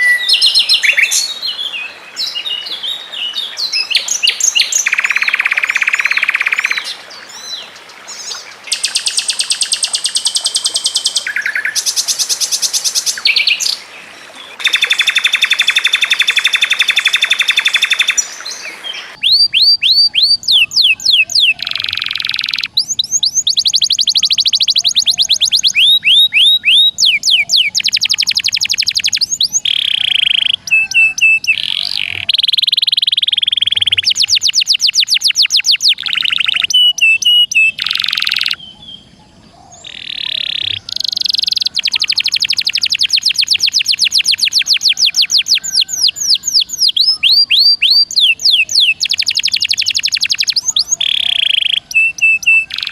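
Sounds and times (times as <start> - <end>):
songbirds trilling: 0.0 - 52.9
rising whistled bird notes: 14.6 - 39.0, 39.6 - 52.9.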